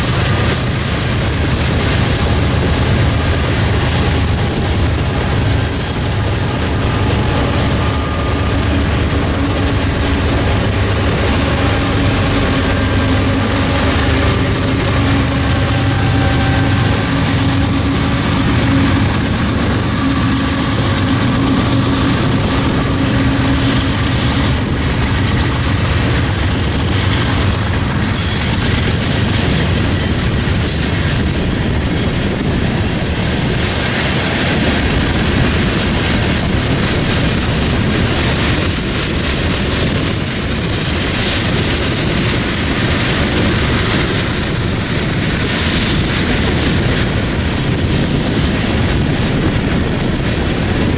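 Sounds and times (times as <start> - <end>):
low hum: 0.0 - 30.6
train wheels rumbling on rails: 0.0 - 50.9.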